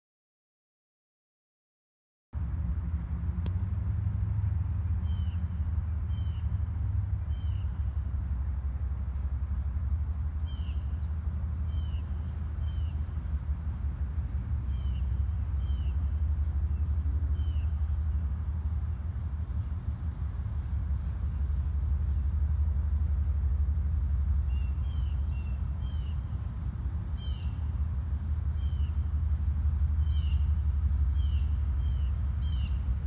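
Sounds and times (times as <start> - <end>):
distant diesel locomotive rumble: 2.4 - 33.0
small birds chirping: 9.2 - 23.4, 24.2 - 27.8, 30.0 - 33.0.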